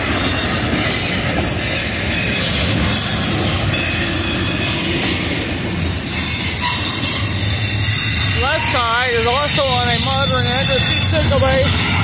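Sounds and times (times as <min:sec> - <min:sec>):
train cars rolling on rails: 0:00.0 - 0:12.0.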